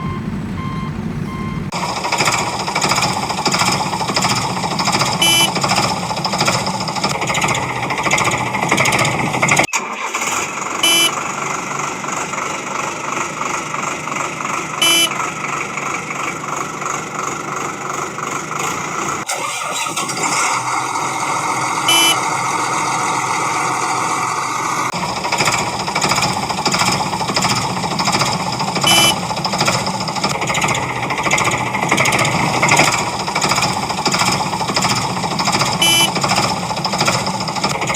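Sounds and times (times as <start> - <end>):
reversing beeps: 0.0 - 1.7, 5.2 - 5.5, 10.8 - 11.1, 14.8 - 15.1, 21.9 - 22.2, 28.8 - 29.2, 35.8 - 36.1
engine rumble: 0.0 - 37.9
machine rattling clatter: 1.7 - 21.8, 24.9 - 37.9
horn-like blip: 5.2 - 5.5, 10.8 - 11.1, 14.8 - 15.2, 21.9 - 22.2, 28.8 - 29.2, 35.8 - 36.1
short high beep: 5.2 - 5.5, 10.8 - 11.1, 14.8 - 15.1, 21.9 - 22.2, 28.8 - 29.2, 35.8 - 36.1.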